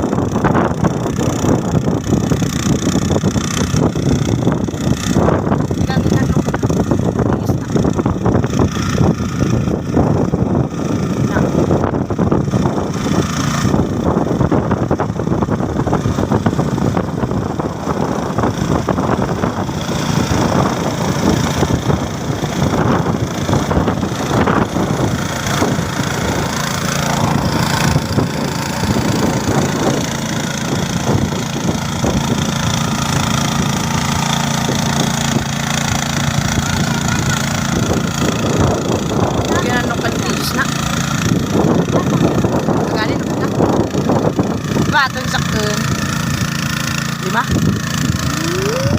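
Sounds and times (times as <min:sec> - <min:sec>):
tractor engine chugging: 0:16.6 - 0:48.9.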